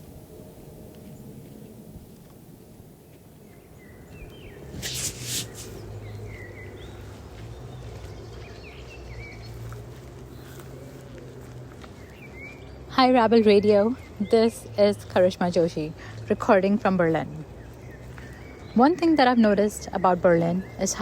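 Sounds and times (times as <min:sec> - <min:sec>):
small birds chirping: 0:03.4 - 0:21.0
loud rustling: 0:04.6 - 0:06.0.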